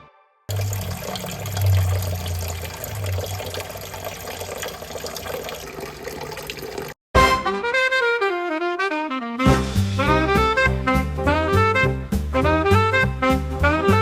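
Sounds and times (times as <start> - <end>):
water running from a tap: 0.5 - 7.0.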